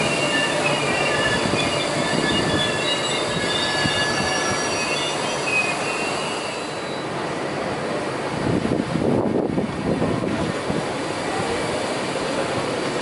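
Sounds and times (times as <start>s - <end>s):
high-pitched wheel squeals: 0.0s - 7.1s
train coaches rumbling on track: 0.0s - 13.0s.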